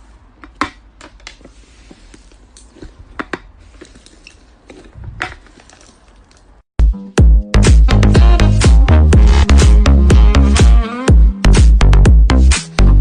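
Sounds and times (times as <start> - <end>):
loud dance music: 7.2 - 12.8.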